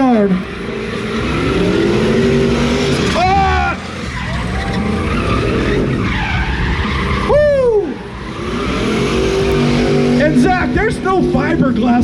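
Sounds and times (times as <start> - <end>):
engine revving high: 0.0 - 12.0
tyres squealing on pavement: 0.5 - 10.6
person shouting: 3.2 - 3.8, 7.3 - 8.0.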